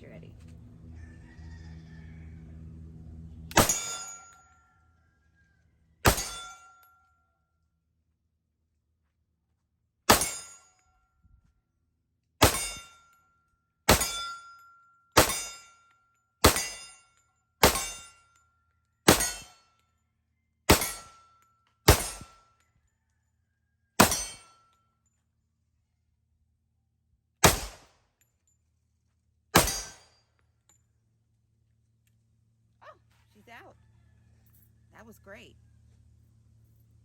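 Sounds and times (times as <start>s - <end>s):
pistol shots: 3.5s - 4.1s, 6.0s - 6.6s, 12.4s - 12.8s, 13.9s - 14.4s, 15.2s - 15.6s, 16.4s - 16.9s, 17.6s - 18.1s, 19.1s - 19.5s, 20.7s - 21.1s, 21.9s - 22.4s, 24.0s - 24.4s, 27.4s - 27.9s, 29.6s - 30.1s
steel target ringing ping: 3.6s - 4.5s, 6.1s - 6.8s, 12.4s - 13.0s, 13.9s - 14.6s, 15.2s - 15.7s, 16.4s - 17.0s, 17.6s - 18.2s, 19.1s - 19.6s, 24.0s - 24.5s.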